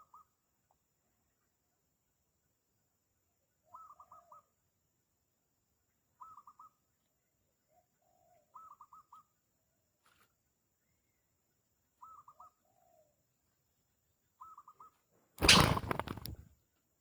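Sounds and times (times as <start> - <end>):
doves cooing faintly: 7.7 - 9.3.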